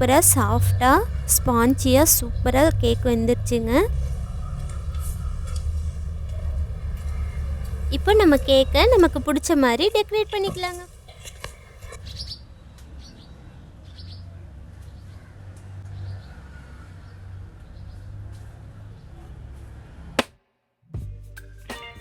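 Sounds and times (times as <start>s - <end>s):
low background hum: 0.0s - 16.1s.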